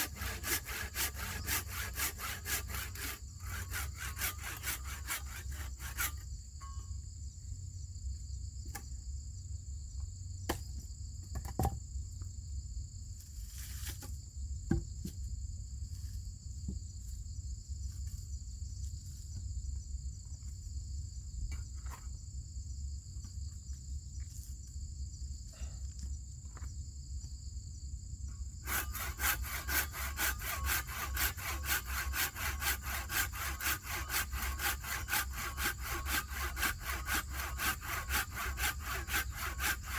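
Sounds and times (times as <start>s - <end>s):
hand saw cutting wood: 0.0s - 6.2s, 28.6s - 39.9s
insects buzzing: 0.0s - 9.0s, 26.1s - 39.9s.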